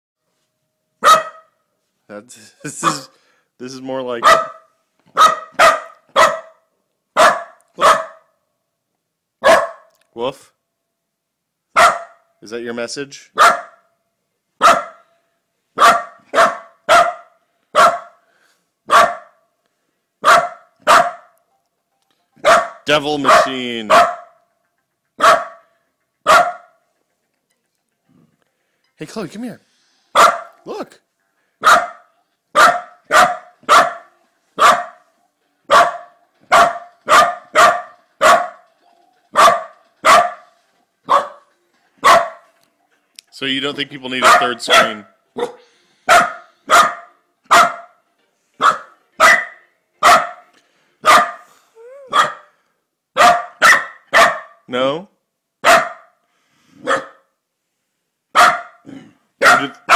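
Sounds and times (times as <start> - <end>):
dog barking: 1.0 - 1.6, 2.8 - 3.2, 4.2 - 6.6, 7.2 - 8.4, 9.4 - 9.9, 11.8 - 12.3, 13.4 - 13.9, 14.6 - 15.1, 15.8 - 18.2, 18.9 - 19.4, 20.2 - 21.4, 22.4 - 24.4, 25.2 - 26.8, 30.1 - 30.6, 31.6 - 35.0, 35.7 - 38.6, 39.4 - 40.5, 41.1 - 42.5, 44.2 - 48.0, 48.6 - 52.5, 53.2 - 54.6, 55.6 - 56.2, 56.8 - 57.3, 58.4 - 59.9.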